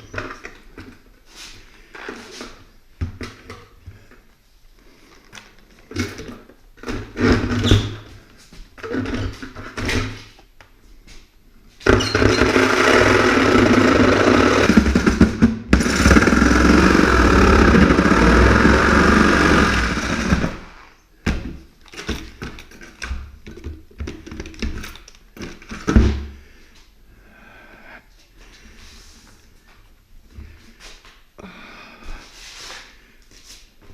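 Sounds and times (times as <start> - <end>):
power saw cutting through door: 11.9 - 20.9.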